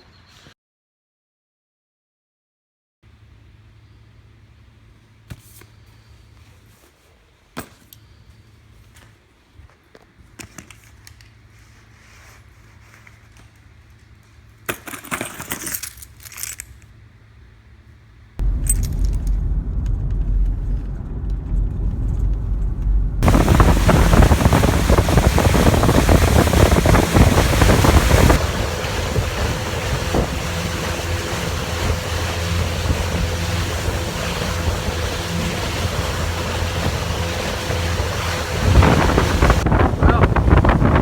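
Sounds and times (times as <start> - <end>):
metallic jingle and rattle: 14.7 - 16.9, 18.5 - 19.4
vehicle driving rumble: 18.4 - 41.0.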